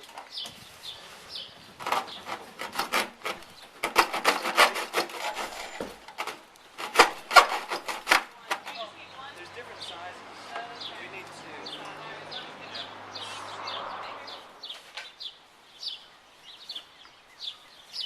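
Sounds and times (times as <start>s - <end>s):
rough scraping strokes: 0.8s - 8.8s.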